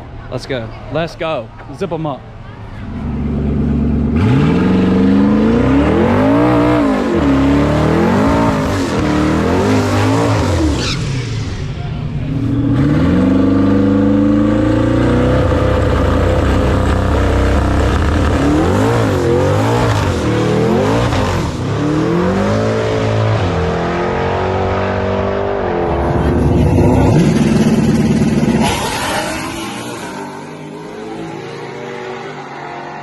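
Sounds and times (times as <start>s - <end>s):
race car engine revving: 2.8s - 33.0s.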